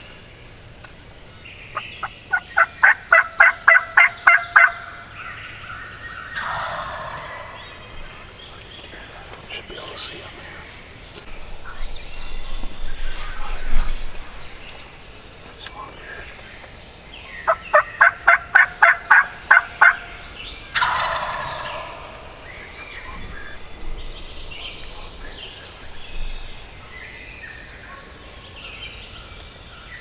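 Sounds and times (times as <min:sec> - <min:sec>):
turkey yelps: 0:02.0 - 0:05.4, 0:06.2 - 0:08.2, 0:17.5 - 0:22.4
turkey gobble: 0:02.0 - 0:08.4, 0:17.4 - 0:23.6.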